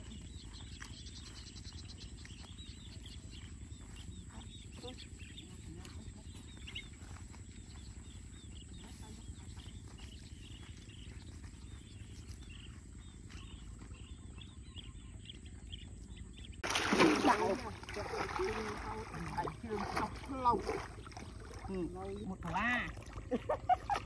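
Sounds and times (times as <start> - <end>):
steady low rumble: 0.0 - 16.7
birds chirping faintly: 0.0 - 24.0.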